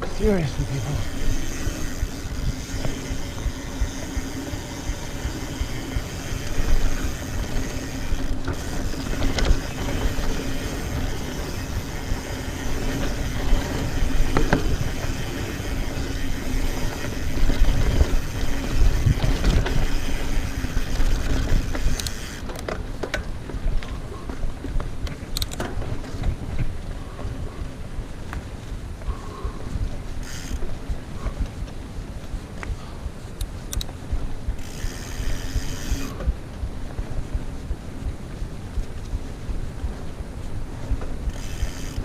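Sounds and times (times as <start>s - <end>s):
wind on microphone: 0.0s - 22.1s
tyres rumbling on dirt: 0.0s - 24.3s
bike clicks and knocks: 0.0s - 27.4s, 30.2s - 31.8s, 32.6s - 36.4s, 40.8s - 42.0s.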